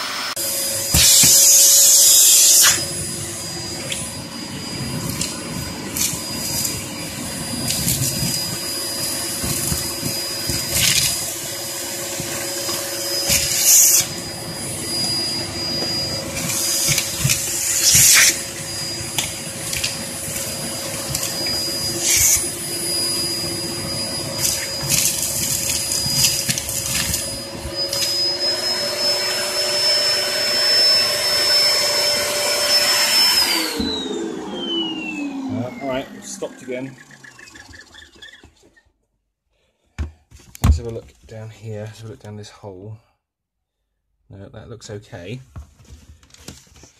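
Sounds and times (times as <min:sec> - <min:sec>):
vacuum cleaner motor whine: 0:00.0 - 0:38.8.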